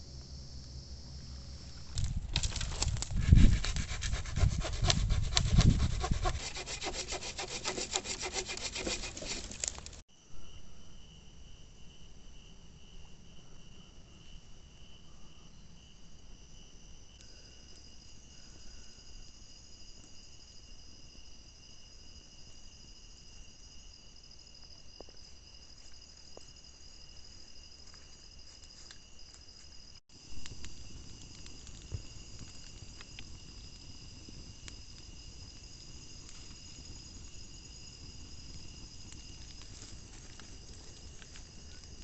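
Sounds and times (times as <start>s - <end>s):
insect chorus trilling: 16.5s - 42.0s.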